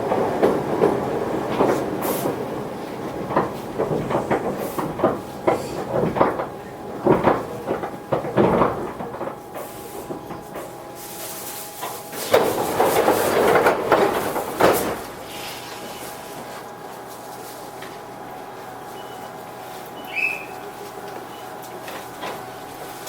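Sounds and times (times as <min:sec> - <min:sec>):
train wheels knocking over rail joints: 0:00.0 - 0:18.2.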